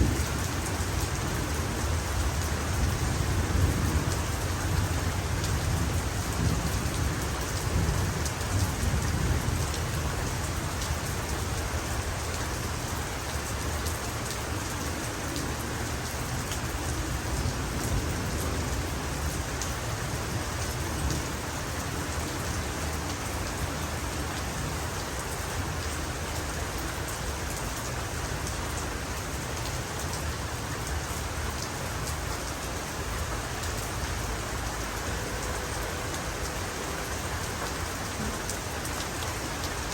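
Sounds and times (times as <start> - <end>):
low rumble of thunder: 0.0 - 12.3
heavy rain falling: 0.0 - 39.9.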